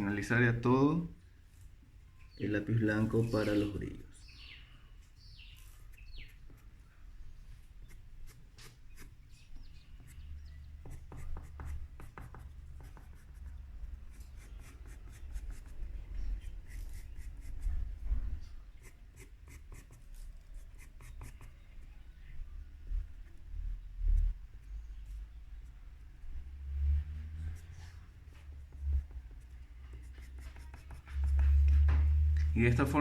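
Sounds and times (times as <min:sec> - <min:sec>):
pencil scratching on paper: 0:07.8 - 0:09.2, 0:10.8 - 0:18.2, 0:18.8 - 0:21.6, 0:28.0 - 0:33.0.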